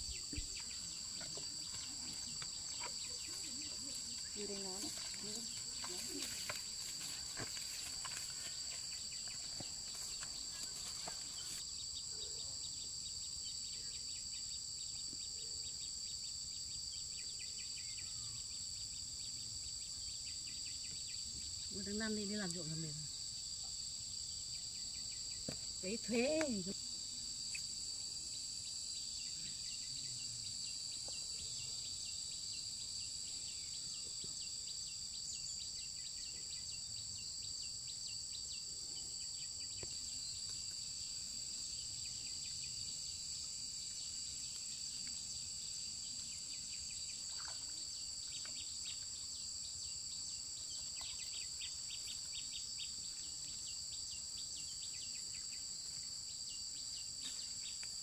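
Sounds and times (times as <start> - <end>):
faint insect chirps: 0.0 - 58.0
high-pitched insect chorus: 0.0 - 58.0.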